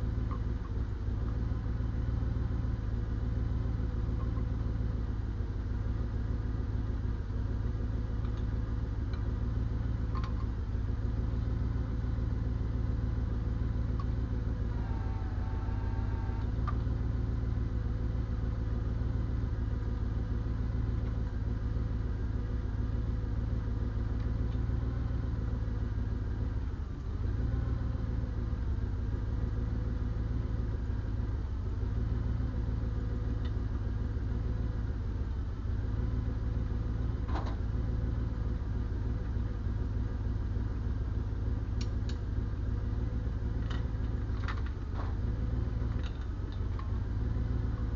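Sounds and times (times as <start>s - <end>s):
diesel engine idling: 0.0s - 47.9s.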